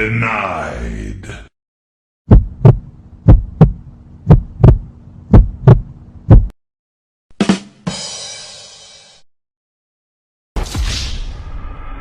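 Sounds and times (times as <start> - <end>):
heartbeat thumps: 2.3 - 6.6.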